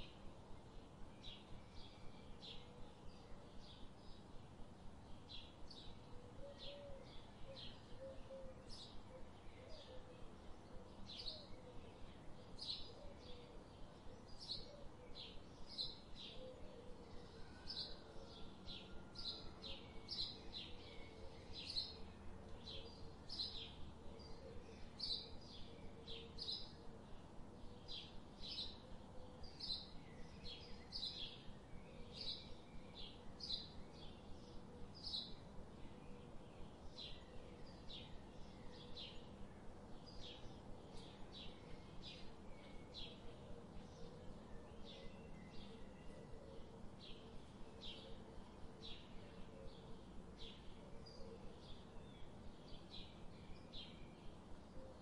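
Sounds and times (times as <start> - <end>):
faint background noise: 0.0 - 55.0
small birds chirping: 19.4 - 55.0.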